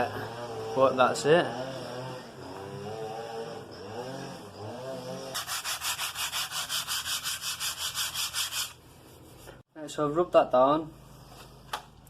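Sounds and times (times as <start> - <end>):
hand sanding wooden floor: 5.3 - 9.6.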